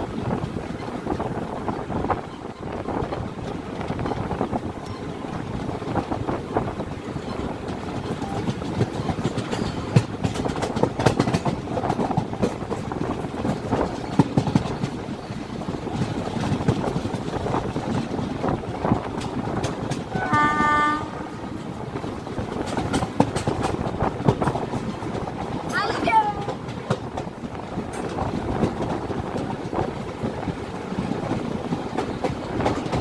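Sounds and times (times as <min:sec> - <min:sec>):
train wheels clicking on track: 0:00.0 - 0:33.0
train horn blast: 0:20.1 - 0:21.6.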